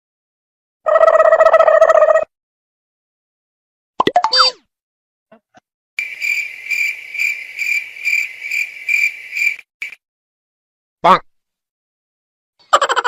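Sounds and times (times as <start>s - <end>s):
cricket chirping: 6.0s - 10.0s.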